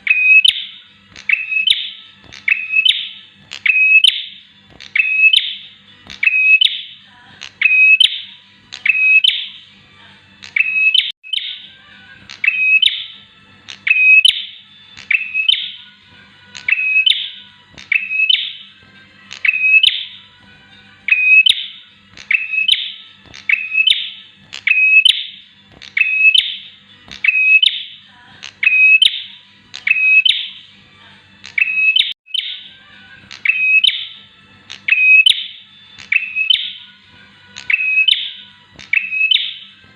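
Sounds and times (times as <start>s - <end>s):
bird chirping: 0.0s - 9.6s, 10.4s - 16.0s, 16.6s - 18.7s, 19.3s - 20.3s, 21.1s - 30.6s, 31.5s - 37.0s, 37.6s - 39.8s.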